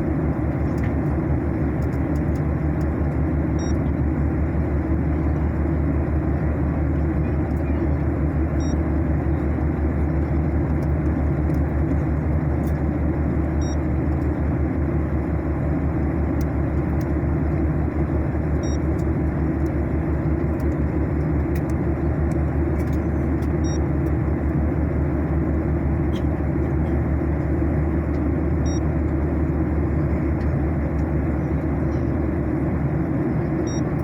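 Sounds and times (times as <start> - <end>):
jet engines and airflow rumble: 0.0 - 34.0.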